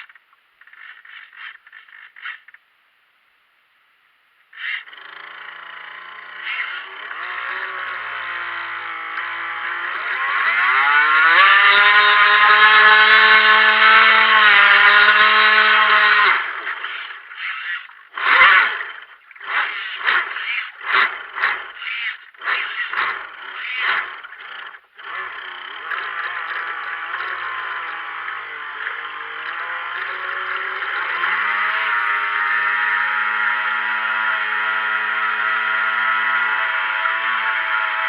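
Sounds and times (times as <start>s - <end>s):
electric motor whining: 4.6s - 38.0s.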